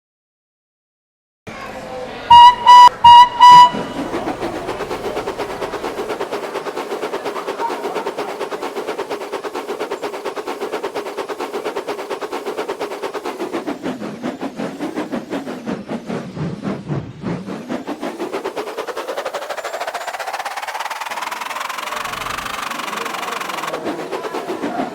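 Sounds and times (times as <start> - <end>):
train whistle toots: 2.3 - 5.0
train running rhythmically: 2.3 - 24.9.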